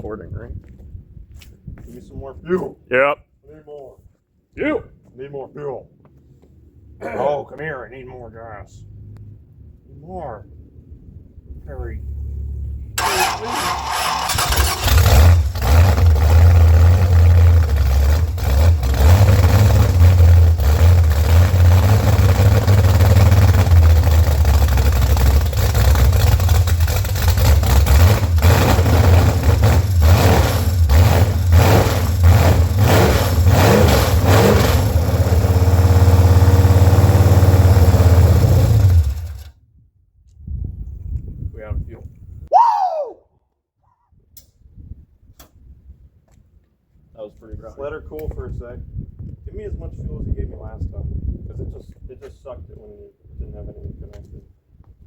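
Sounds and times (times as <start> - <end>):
engine running rough: 12.2 - 39.5.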